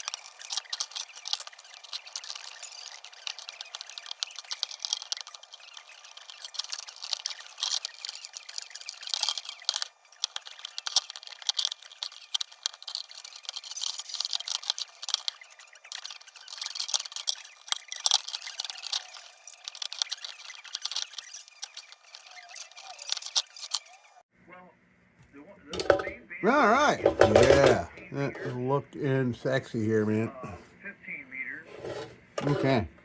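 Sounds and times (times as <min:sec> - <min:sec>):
scrubbing on steel: 0:25.8 - 0:28.8, 0:31.6 - 0:33.0.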